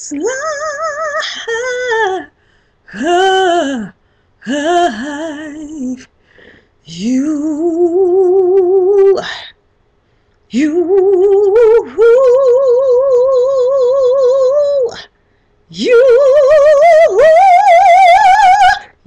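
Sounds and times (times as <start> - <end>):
woman singing unaccompanied: 0.0 - 6.2, 6.8 - 9.6, 10.5 - 15.1, 15.7 - 19.0
woman breathing: 2.3 - 2.9, 4.0 - 4.4, 6.1 - 6.9, 15.1 - 15.7.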